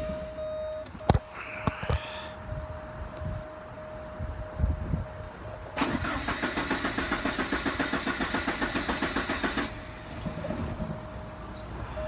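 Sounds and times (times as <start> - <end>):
car engine cranking: 5.8 - 10.9.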